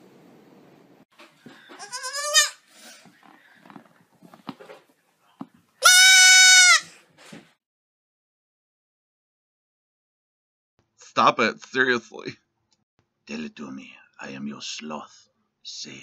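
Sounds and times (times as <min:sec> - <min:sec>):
faint knocks and rustles: 0:01.1 - 0:01.9, 0:02.9 - 0:05.8, 0:06.9 - 0:07.6
goat bleating: 0:01.7 - 0:02.6, 0:05.8 - 0:06.9.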